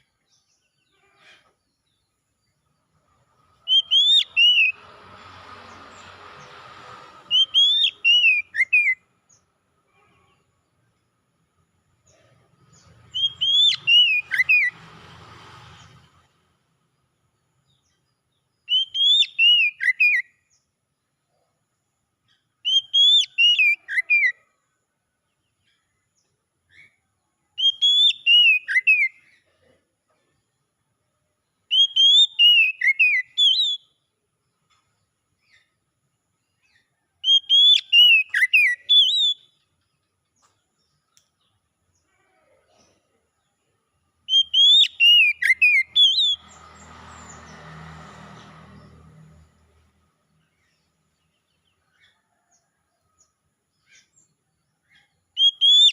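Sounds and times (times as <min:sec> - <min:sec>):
bird whistling song phrase: 0:03.6 - 0:04.8, 0:07.3 - 0:09.0, 0:13.1 - 0:14.7, 0:18.7 - 0:20.3, 0:22.6 - 0:24.4, 0:27.6 - 0:29.2, 0:31.7 - 0:33.9, 0:37.2 - 0:39.6, 0:44.3 - 0:46.6, 0:55.4 - 0:55.9.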